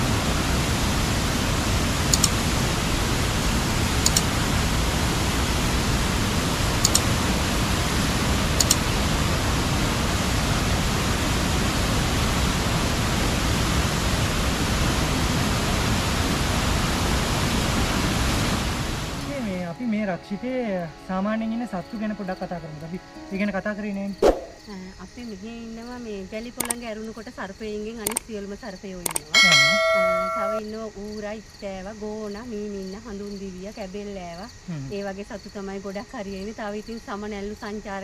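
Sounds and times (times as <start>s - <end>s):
rushing water: 0.0s - 19.3s
high chirps: 29.1s - 30.6s.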